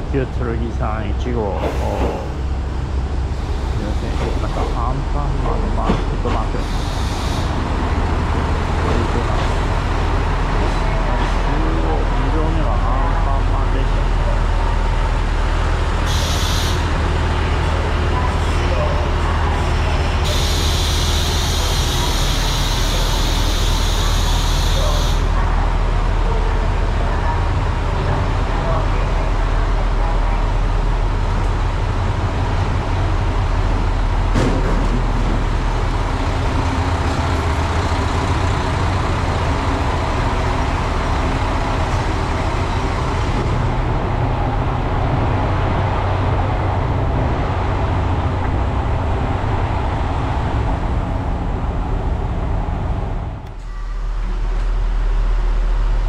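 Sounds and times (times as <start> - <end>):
diesel railcar engines idling: 0.0 - 56.0.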